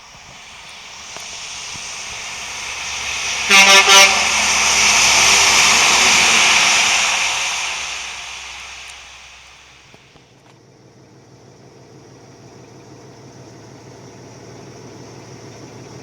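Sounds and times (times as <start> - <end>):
truck passing road noise: 0.0 - 11.7
truck horn blasts: 3.0 - 7.4.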